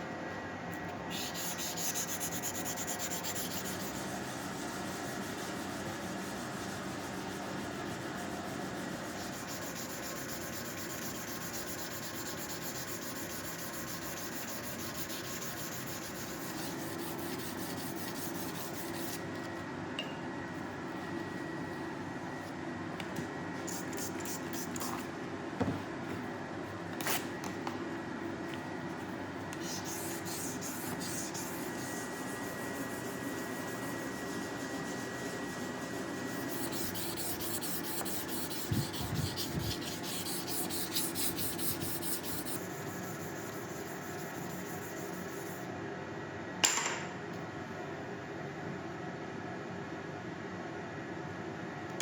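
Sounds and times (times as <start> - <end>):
steady background hum: 0.0 - 52.0
sanding steel blade: 1.1 - 19.2, 29.6 - 45.6.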